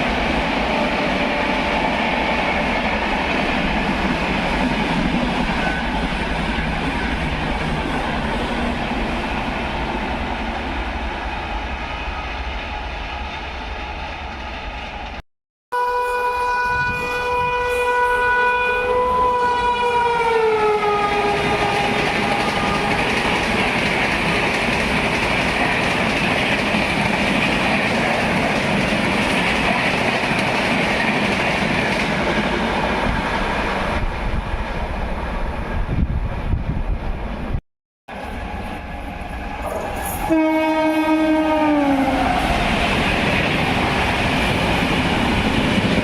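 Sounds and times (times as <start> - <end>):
train coaches rushing and clattering: 0.0 - 15.2, 20.9 - 37.2, 38.1 - 46.0
train horn dropping in pitch: 15.7 - 23.2, 39.7 - 42.5.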